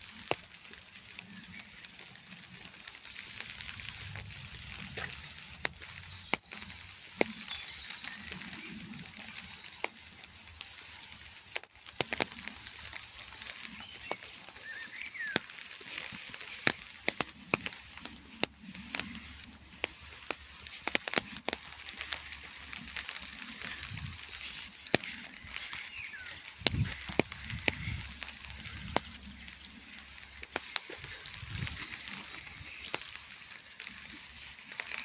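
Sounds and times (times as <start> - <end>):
raindrops tapping: 0.0 - 35.0
faint bird chirp: 2.7 - 11.2, 13.2 - 16.4, 22.8 - 30.2.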